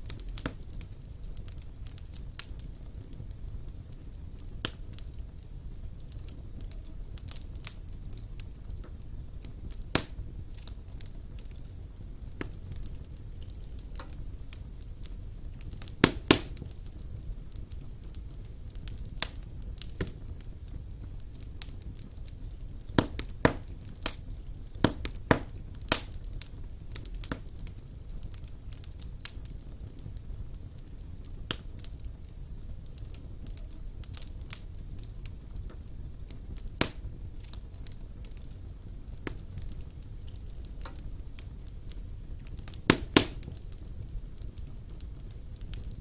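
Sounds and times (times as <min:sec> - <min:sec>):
fire flames rumbling: 0:00.0 - 0:46.0
logs crackling and popping: 0:00.0 - 0:46.0.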